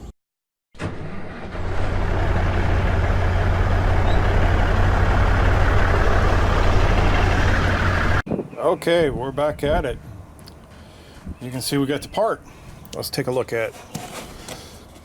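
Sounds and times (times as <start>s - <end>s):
heavy engine running: 0.8s - 8.2s.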